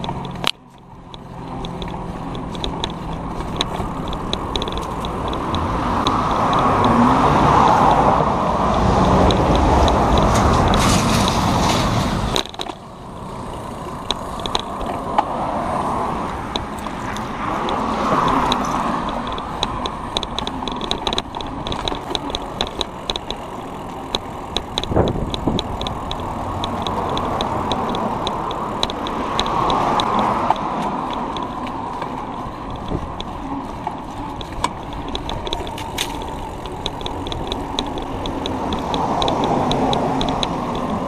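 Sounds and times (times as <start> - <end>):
bicycle freewheel ticking: 0.0 - 8.0, 8.6 - 11.3, 12.3 - 15.2, 15.8 - 41.0
cars passing: 0.0 - 41.0
road and wind noise: 0.0 - 41.0.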